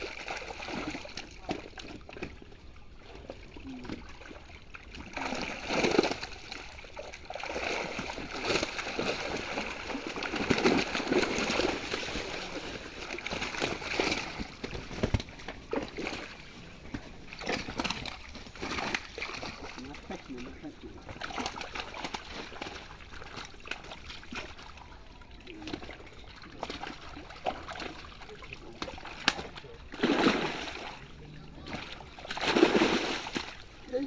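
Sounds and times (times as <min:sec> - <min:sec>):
pond water splashing: 0:00.0 - 0:34.0.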